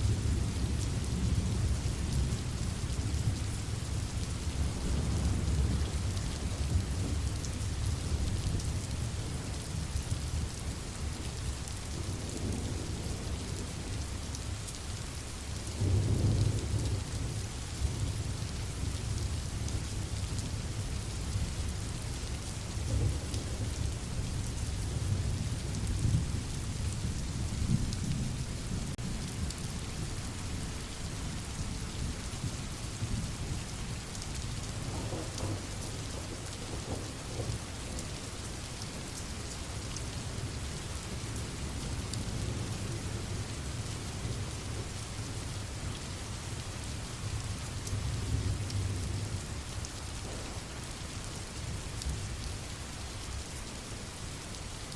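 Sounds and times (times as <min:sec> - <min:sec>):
steady rain hissing: 0:00.0 - 0:54.9
low rolling thunder: 0:34.7 - 0:38.3, 0:50.0 - 0:51.8.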